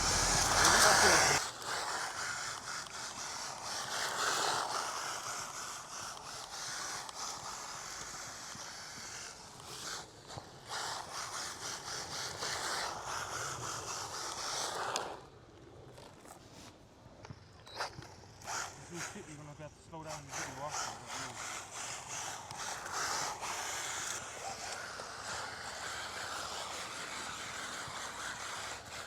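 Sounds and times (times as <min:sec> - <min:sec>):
electric motor whining: 0:00.0 - 0:01.4
small tyres scraping ground: 0:00.0 - 0:01.4.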